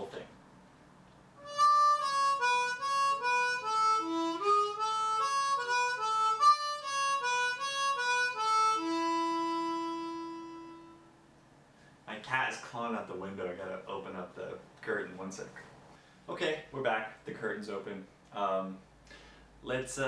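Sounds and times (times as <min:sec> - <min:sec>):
harmonica melody: 0:01.4 - 0:11.2.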